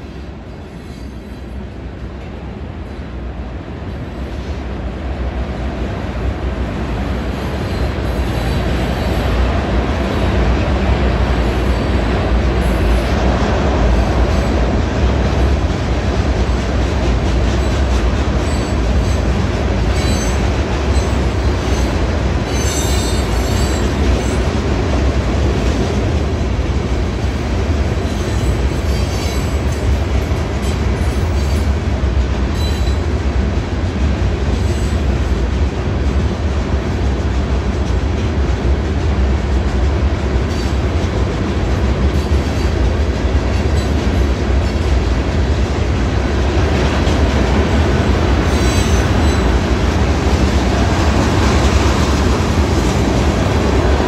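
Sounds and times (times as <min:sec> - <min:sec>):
freight train rumbling past: 0:00.0 - 0:54.0
high wheel squeal: 0:20.0 - 0:23.9.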